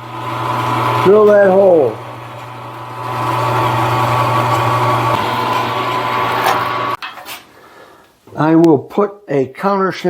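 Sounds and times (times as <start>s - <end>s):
milling machine motor whine: 0.0s - 7.0s.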